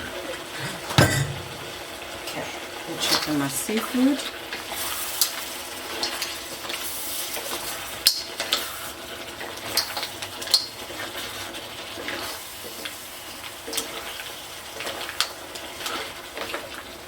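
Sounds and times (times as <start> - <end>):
utensil clinking against pan: 0.6 - 1.8
seafood sizzling in a pan: 3.1 - 17.0.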